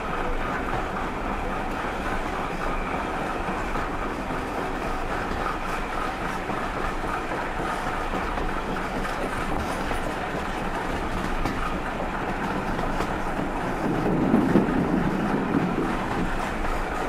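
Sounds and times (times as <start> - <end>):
train rumbling along track: 0.0 - 17.0.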